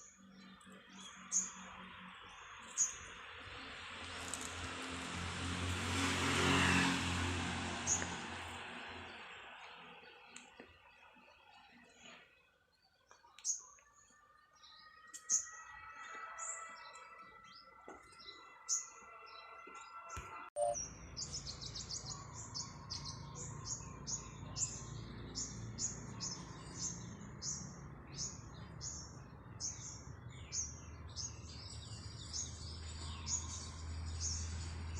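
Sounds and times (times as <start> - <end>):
small birds chirping: 9.0 - 15.6, 20.6 - 34.9.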